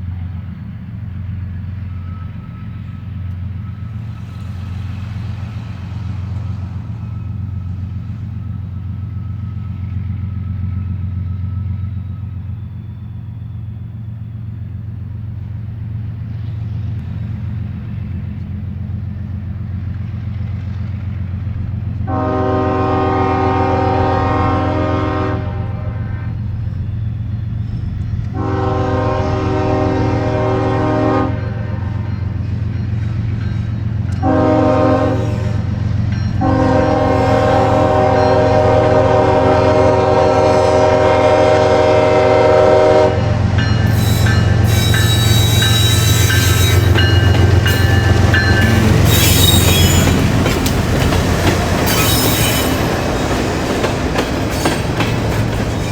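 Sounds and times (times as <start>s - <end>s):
freight cars rail noise: 0.0s - 55.9s
locomotive rumble: 0.0s - 55.9s
locomotive air horn blasts: 22.0s - 26.4s, 28.3s - 32.1s, 34.2s - 35.8s, 36.4s - 52.9s
wheel squeal: 43.8s - 55.9s.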